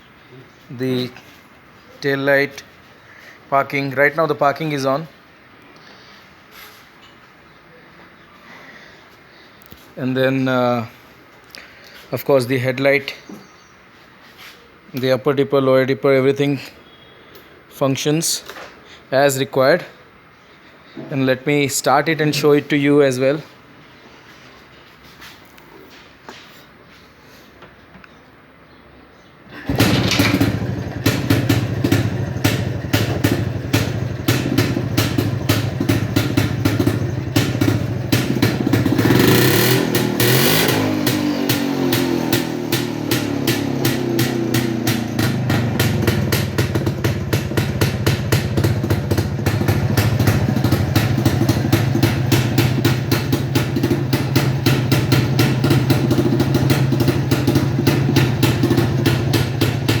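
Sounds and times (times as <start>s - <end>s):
motorcycle engine idling: 29.6s - 60.0s.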